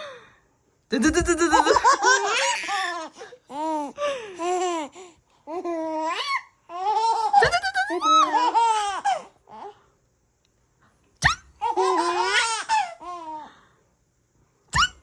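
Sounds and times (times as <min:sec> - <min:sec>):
baby laughing: 0:00.9 - 0:04.9, 0:05.6 - 0:09.3, 0:11.6 - 0:13.3.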